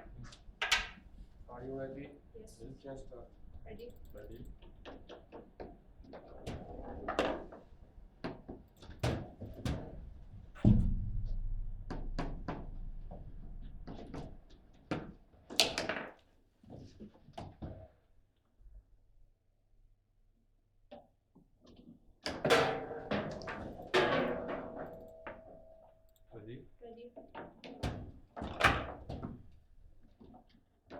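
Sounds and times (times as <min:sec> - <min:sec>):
heavy thunk: 0:10.6 - 0:13.6.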